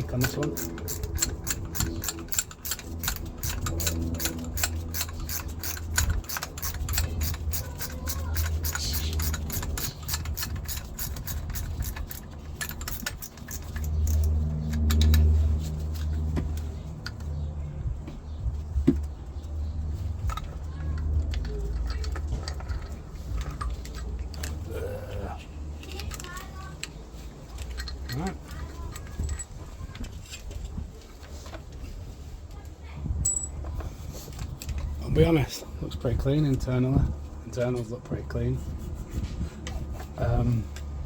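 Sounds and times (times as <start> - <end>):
metallic clicks: 0.0 - 15.4
ratchet spanner clicking: 0.0 - 17.3, 20.2 - 24.7.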